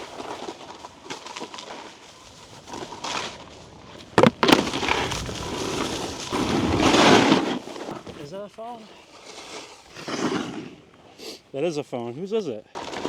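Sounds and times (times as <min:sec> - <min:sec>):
boots crunching on icy snow: 0:00.0 - 0:10.2
snow scraping: 0:00.0 - 0:11.4.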